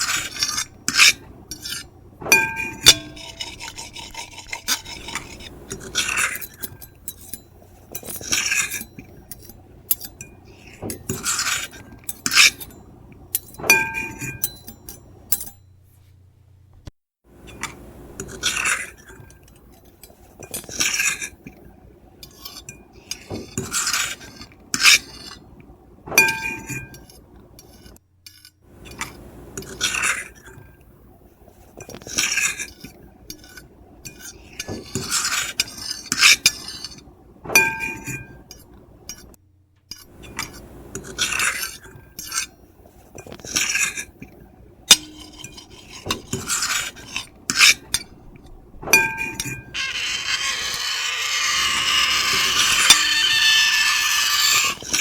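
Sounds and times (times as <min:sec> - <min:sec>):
fork and knife scraping a plate: 0:00.0 - 0:15.6, 0:17.4 - 0:21.6, 0:22.2 - 0:25.5, 0:26.2 - 0:30.7, 0:31.7 - 0:39.3, 0:39.9 - 0:55.0
cutlery clinking on plate: 0:00.9 - 0:12.8, 0:13.4 - 0:15.6, 0:26.2 - 0:27.2, 0:37.6 - 0:38.4, 0:48.9 - 0:50.8.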